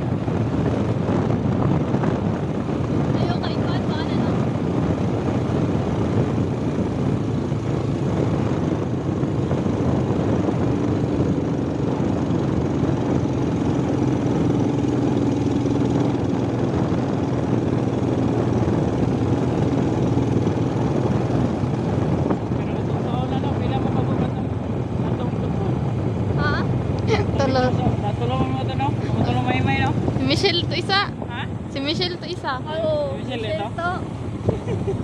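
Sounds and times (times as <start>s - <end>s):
faint steady engine tone: 0.0s - 35.0s
motorbike engine running: 0.0s - 35.0s
road noise: 0.0s - 35.0s
wind noise: 0.0s - 35.0s.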